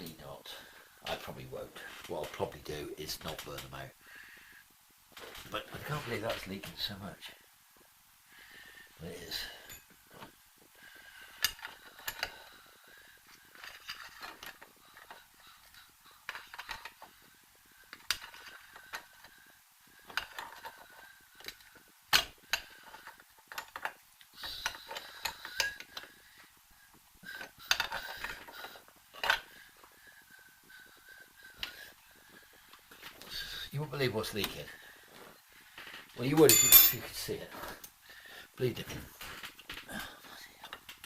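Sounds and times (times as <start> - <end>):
metallic clinks of tools: 36.4 - 37.1.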